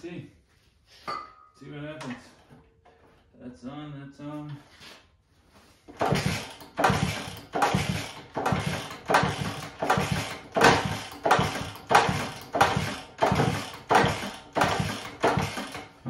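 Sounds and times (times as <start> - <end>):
small engine being kick-started: 5.9 - 16.0.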